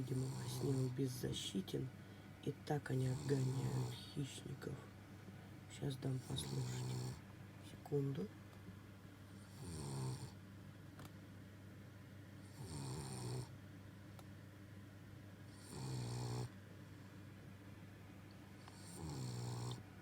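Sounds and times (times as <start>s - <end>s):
dog snoring: 0.0s - 1.1s, 2.9s - 4.2s, 6.1s - 7.2s, 9.4s - 10.4s, 12.4s - 13.5s, 15.5s - 16.6s, 18.6s - 19.8s.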